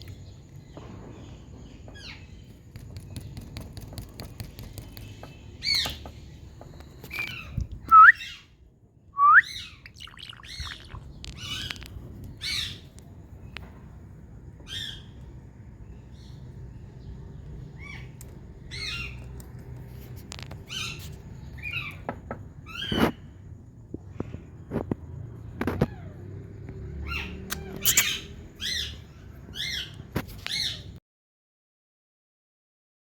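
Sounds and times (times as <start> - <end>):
parakeet rising whistles: 7.8 - 8.4, 9.2 - 11.0, 27.1 - 28.4
parakeet squawks and chirps: 9.4 - 12.9, 17.8 - 19.2, 27.0 - 31.0.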